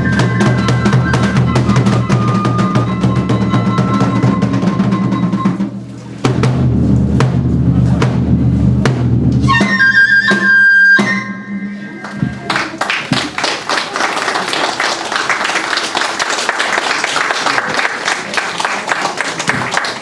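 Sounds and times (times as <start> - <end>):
bamboo flute melody: 0.0 - 6.2, 9.3 - 12.8
rapid taiko drumming: 0.0 - 9.8.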